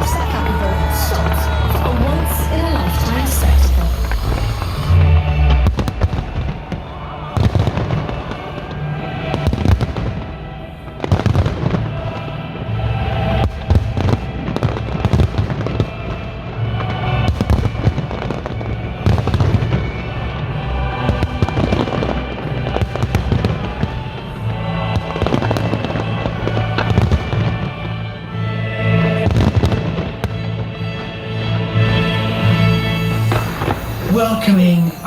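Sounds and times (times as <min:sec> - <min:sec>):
fireworks exploding: 0:00.0 - 0:27.8, 0:29.0 - 0:35.0
loud music with bass: 0:03.7 - 0:07.6.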